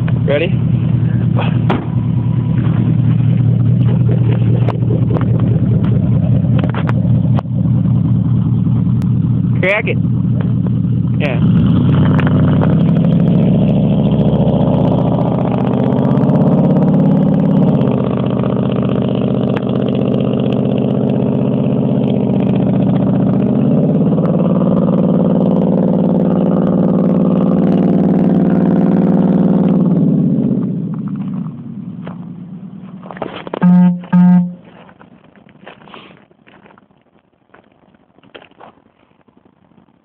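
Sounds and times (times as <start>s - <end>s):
truck engine revving through exhaust: 8.9s - 30.8s, 33.6s - 34.6s
short loud tones: 33.6s - 34.7s.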